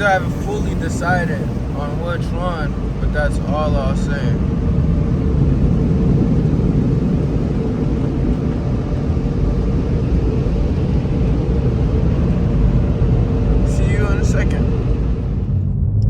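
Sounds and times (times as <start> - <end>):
car exhaust drone: 0.0 - 16.0
road rumble: 0.0 - 16.0.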